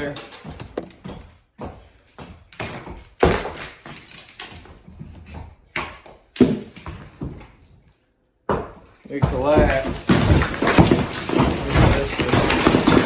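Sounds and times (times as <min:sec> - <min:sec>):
bricks crashing down chimney: 0:02.6 - 0:04.6, 0:08.5 - 0:13.0.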